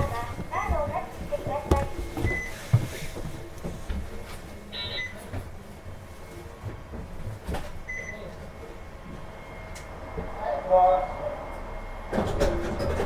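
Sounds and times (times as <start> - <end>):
short electronic beep: 4.7 - 5.2.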